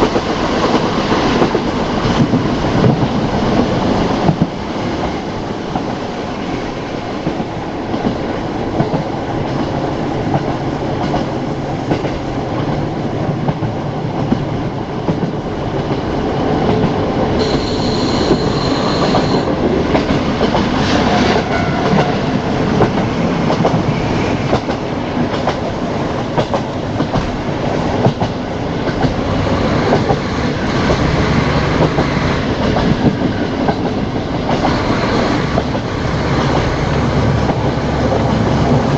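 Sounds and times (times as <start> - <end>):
diesel railcar engine humming: 16.6 - 24.2
high tone: 17.4 - 19.6.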